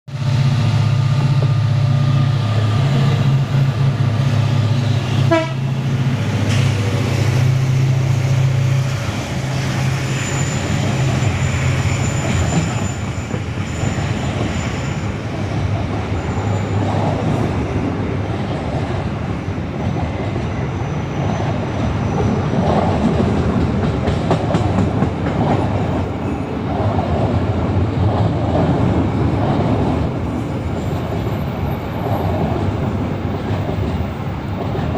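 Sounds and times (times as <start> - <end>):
diesel locomotive droning: 0.1 - 26.8
train wheels clattering on rails: 2.6 - 34.9.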